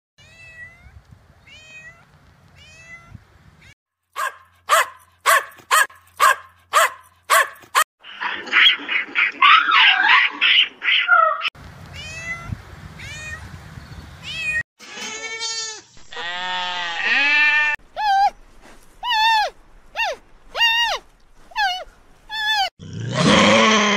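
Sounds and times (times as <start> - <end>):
animal yowling: 8.4 - 11.5, 21.6 - 23.9.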